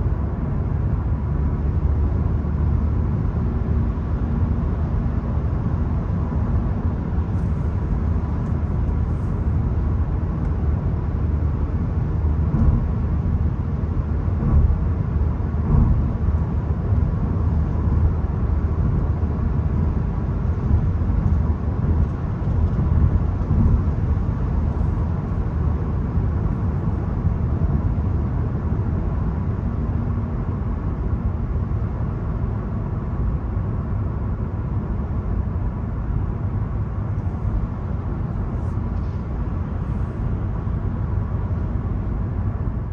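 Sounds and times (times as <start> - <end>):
car engine rumbling: 0.0 - 42.9
tyre noise while driving: 12.2 - 18.7, 20.6 - 25.7.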